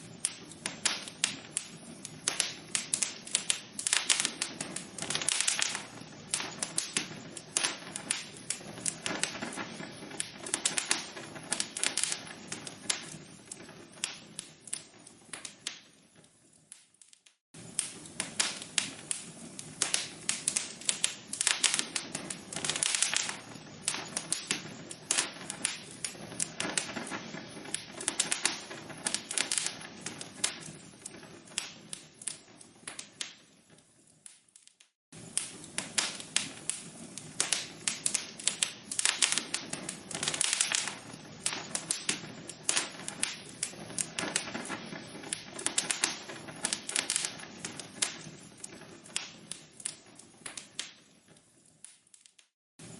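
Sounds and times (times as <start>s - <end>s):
log fire crackling: 0.0s - 52.9s.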